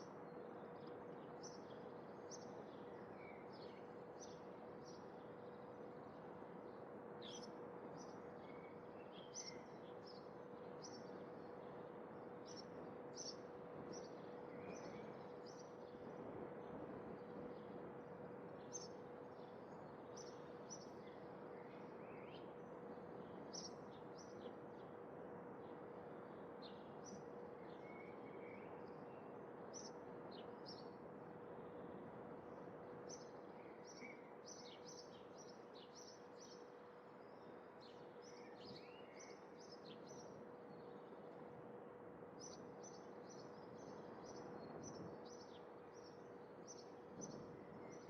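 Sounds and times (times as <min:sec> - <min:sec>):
faint steady hum: 0:00.0 - 0:48.0
small birds chirping: 0:18.7 - 0:22.5, 0:33.1 - 0:41.4, 0:42.4 - 0:48.0.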